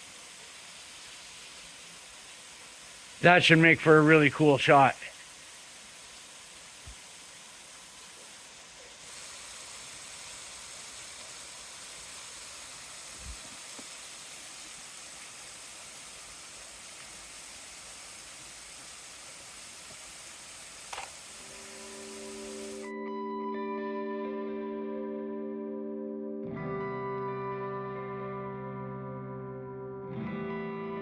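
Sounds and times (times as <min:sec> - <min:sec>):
waterfall rushing: 0:00.0 - 0:22.9
soft background music: 0:21.6 - 0:31.0.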